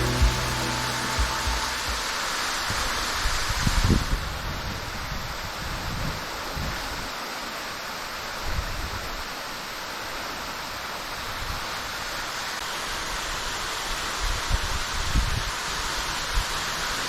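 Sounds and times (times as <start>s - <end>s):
brief low rumbles: 0.0s - 2.1s
waterfall rushing: 0.0s - 2.7s.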